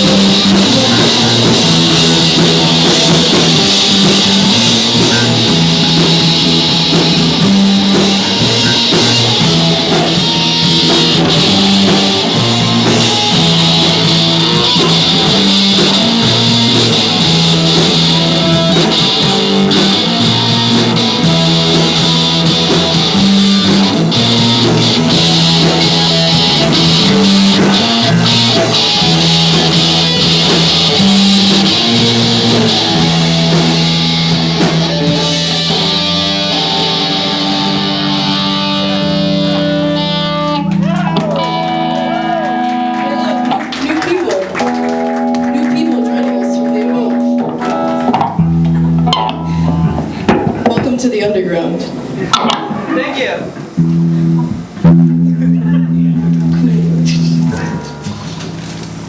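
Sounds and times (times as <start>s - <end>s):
bass guitar: 0.0s - 59.0s
drum kit: 0.0s - 59.0s
electric guitar: 0.0s - 59.0s.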